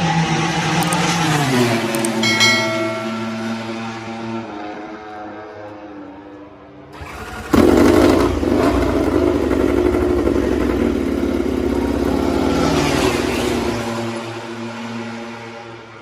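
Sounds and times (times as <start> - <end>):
racing motorcycle engine at high revs: 7.0 - 15.6.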